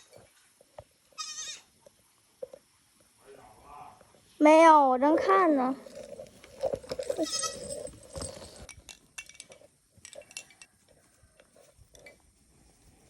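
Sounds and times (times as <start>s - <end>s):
goat bleating: 1.2s - 1.7s, 6.9s - 7.9s.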